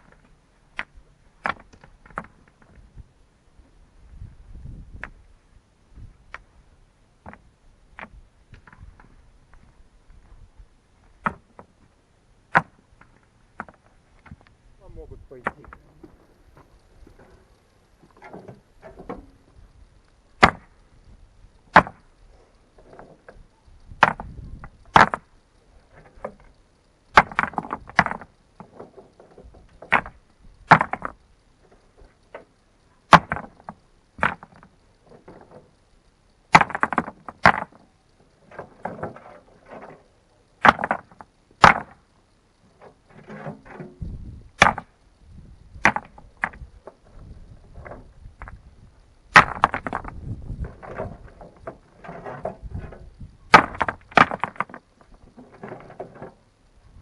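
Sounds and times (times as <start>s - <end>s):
rocks and tools knocking: 0.0s - 2.8s, 7.2s - 9.7s, 11.0s - 11.9s, 12.5s - 19.7s, 20.4s - 20.7s, 21.6s - 22.2s, 22.8s - 25.3s, 25.9s - 35.7s, 36.5s - 42.0s, 42.8s - 44.9s, 45.8s - 48.6s, 49.3s - 56.4s.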